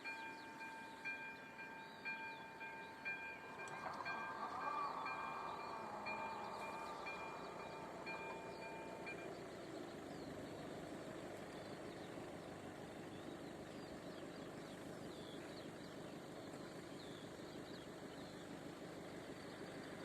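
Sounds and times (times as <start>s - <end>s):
small birds chirping: 5.0s - 20.0s.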